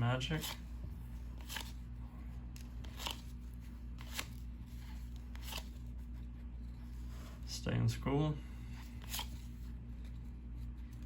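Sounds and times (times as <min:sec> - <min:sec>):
steady low hum: 0:00.0 - 0:11.0
cards flicking and rustling: 0:00.3 - 0:06.4, 0:08.8 - 0:11.0.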